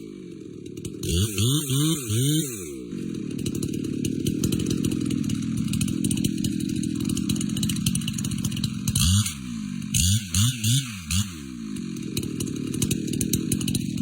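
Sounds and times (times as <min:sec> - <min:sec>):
chainsaw cutting tree trunk: 0:00.0 - 0:14.0
chainsaw revving: 0:00.0 - 0:14.0.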